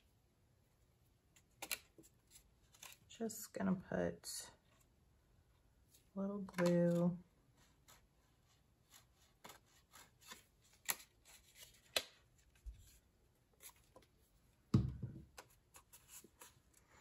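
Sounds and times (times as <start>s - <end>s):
paper card clicks and rustles: 1.4s - 3.1s, 8.9s - 13.0s.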